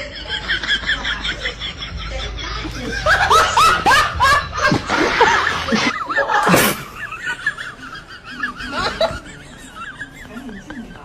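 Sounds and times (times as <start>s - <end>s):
person laughing in bursts: 2.9s - 7.6s.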